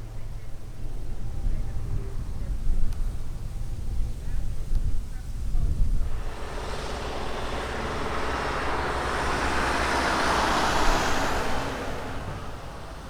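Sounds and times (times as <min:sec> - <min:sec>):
vehicle passing by: 0:06.0 - 0:13.0.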